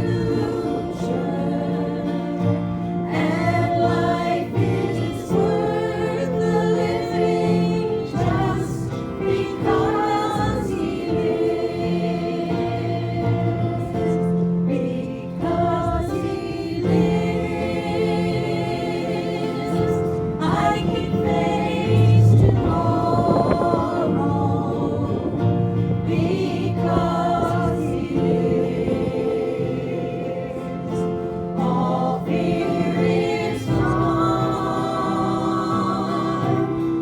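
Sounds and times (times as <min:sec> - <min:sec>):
group singing a gospel hymn: 0:00.0 - 0:37.0.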